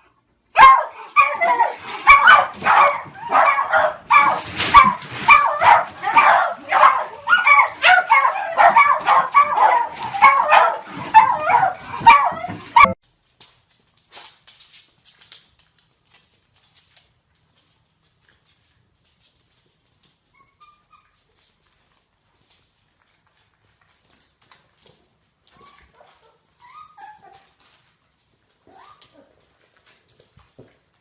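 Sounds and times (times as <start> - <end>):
dog barking and yipping: 0.6 - 13.0.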